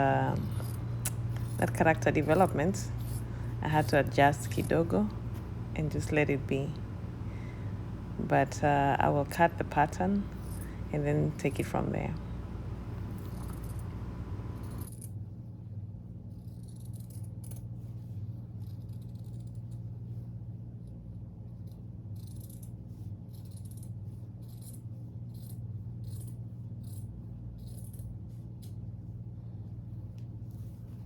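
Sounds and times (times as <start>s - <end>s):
steady low hum: 0.0s - 31.0s
scissors cutting fabric: 21.6s - 28.8s.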